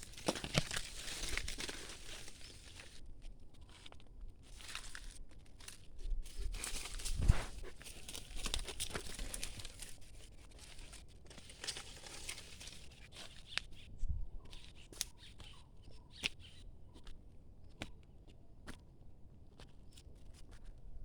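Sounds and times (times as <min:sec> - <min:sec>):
rustling in dry leaves: 0:00.0 - 0:16.6.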